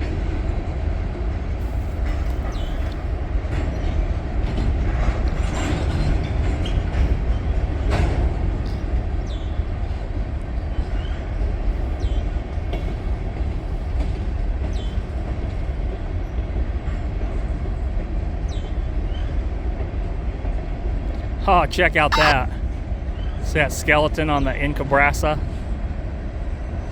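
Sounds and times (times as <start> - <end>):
freight train cars rumbling past: 0.0 - 26.9.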